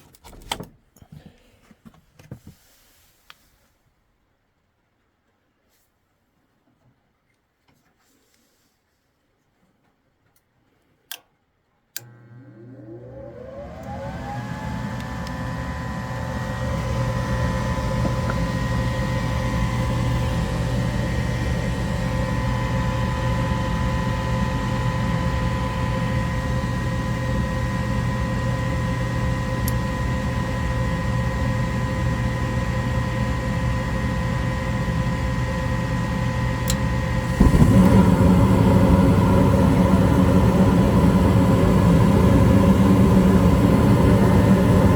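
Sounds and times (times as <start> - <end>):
furnace motor whine and hum: 11.9 - 44.9.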